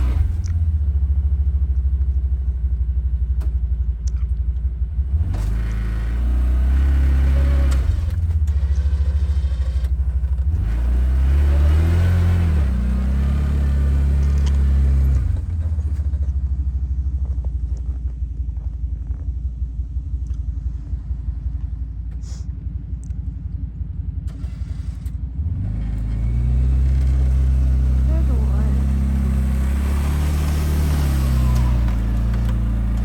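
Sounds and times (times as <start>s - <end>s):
atv engine revving under load: 0.0s - 0.8s, 5.0s - 16.3s, 24.3s - 33.0s.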